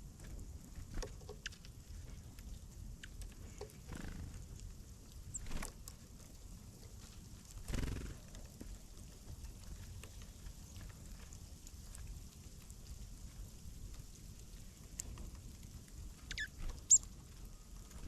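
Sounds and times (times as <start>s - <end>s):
high bird chirp: 16.3s - 17.0s.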